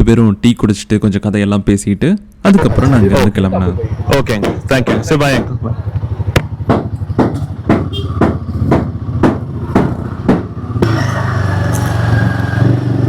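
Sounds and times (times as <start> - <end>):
motorcycle engine running: 3.7 - 13.0
regular thuds: 4.0 - 10.9.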